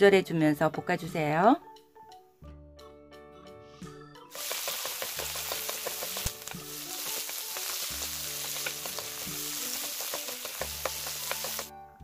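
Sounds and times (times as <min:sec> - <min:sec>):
vegetables sizzling in hot oil: 0:04.3 - 0:11.7.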